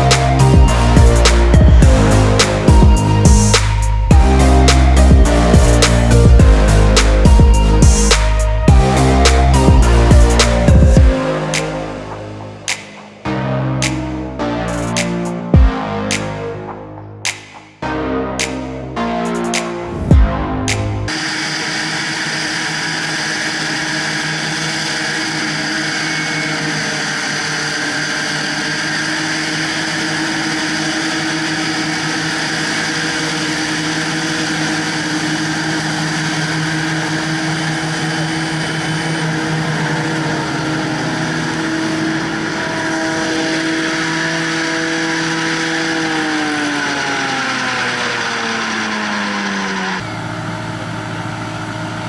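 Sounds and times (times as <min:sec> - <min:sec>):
tractor diesel engine running: 0:00.0 - 0:11.2, 0:29.9 - 0:45.9, 0:47.5 - 0:52.0.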